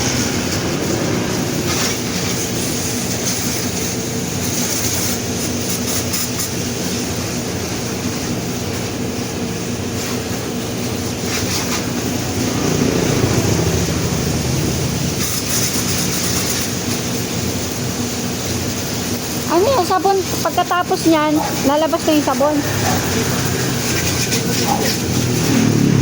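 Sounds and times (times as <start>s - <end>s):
rush of spray: 0.0s - 8.1s, 9.6s - 26.0s
low motor hum: 11.9s - 15.6s, 21.2s - 26.0s.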